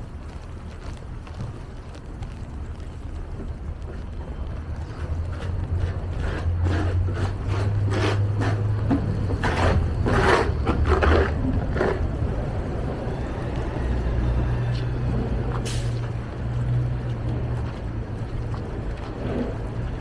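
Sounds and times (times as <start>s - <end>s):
low rumble: 8.5s - 20.0s.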